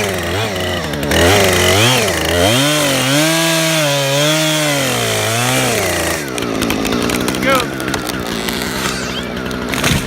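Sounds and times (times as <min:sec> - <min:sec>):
chainsaw revving and cutting: 0:00.0 - 0:10.0.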